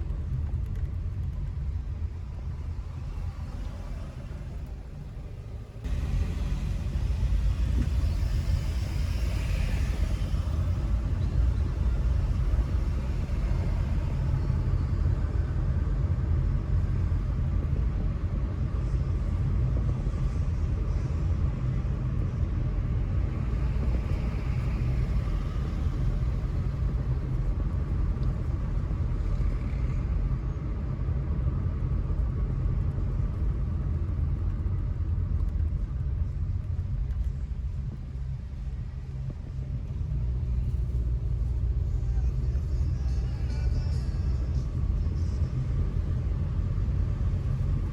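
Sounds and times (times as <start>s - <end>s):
car engine and tyres rumbling: 0.0s - 47.9s.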